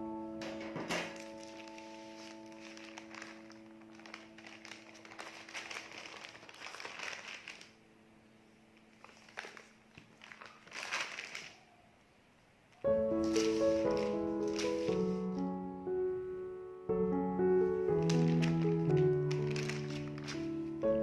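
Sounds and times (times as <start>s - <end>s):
held background music chord: 0.0s - 2.8s, 12.9s - 21.0s
crinkling and rustling handling noise: 0.4s - 7.8s, 8.8s - 11.8s, 13.1s - 15.4s, 17.6s - 20.8s.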